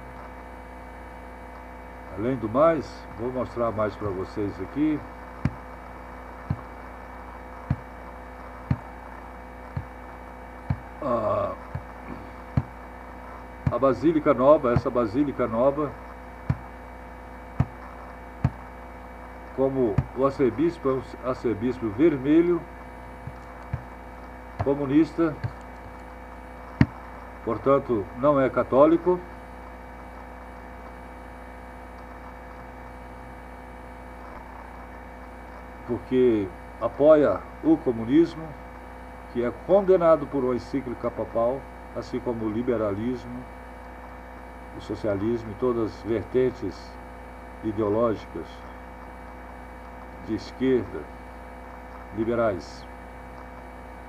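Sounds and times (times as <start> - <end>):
low electrical hum: 0.0 - 54.0
soft thuds: 4.0 - 20.8, 22.7 - 27.3.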